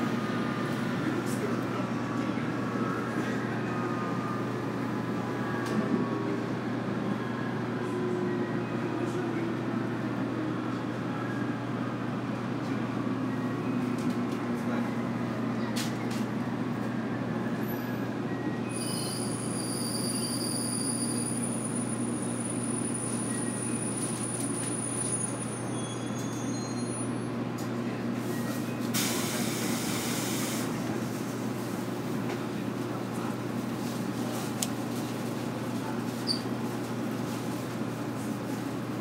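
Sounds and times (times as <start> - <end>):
high wheel squeal: 18.6 - 27.3.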